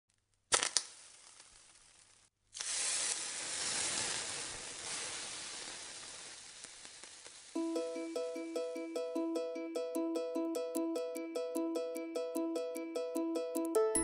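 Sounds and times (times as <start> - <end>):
hiss like food sizzling: 0.5 - 8.9.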